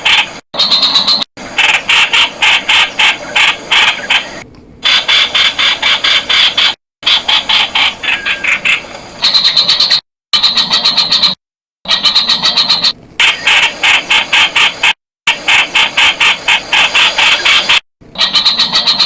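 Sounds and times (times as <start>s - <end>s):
bird calling harsh notes: 0.0s - 19.0s.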